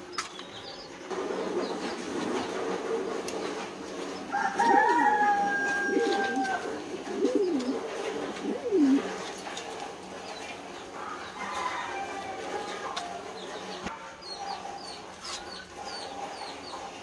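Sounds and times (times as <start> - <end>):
low cooing notes: 4.5 - 9.2.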